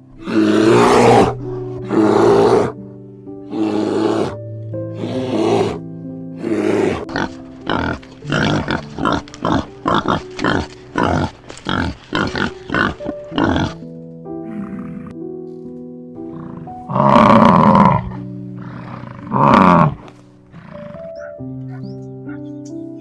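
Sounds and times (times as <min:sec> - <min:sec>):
animal grunting: 0:00.0 - 0:02.8, 0:03.5 - 0:05.8, 0:06.4 - 0:15.2, 0:16.2 - 0:21.8
soft piano music: 0:00.0 - 0:23.0.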